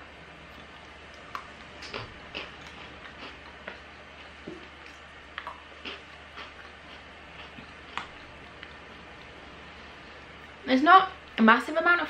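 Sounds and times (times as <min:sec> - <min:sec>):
faint low hum: 0:00.0 - 0:12.0
biscuit crunching: 0:00.5 - 0:09.4.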